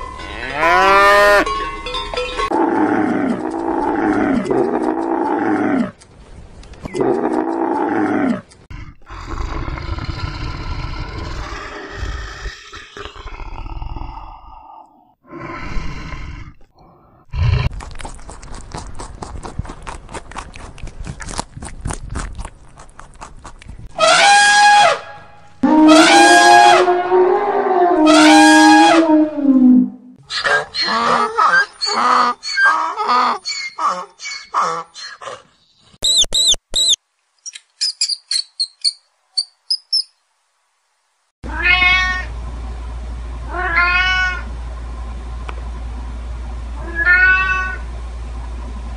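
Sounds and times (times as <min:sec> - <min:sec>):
rabbit chewing grass: 0:17.6 - 0:23.9
elephant trumpeting: 0:24.0 - 0:32.8
high-pitched squeaks and chirps: 0:30.3 - 0:35.2, 0:35.8 - 0:40.2
cat meowing: 0:41.5 - 0:42.3, 0:43.5 - 0:44.5, 0:46.8 - 0:47.8.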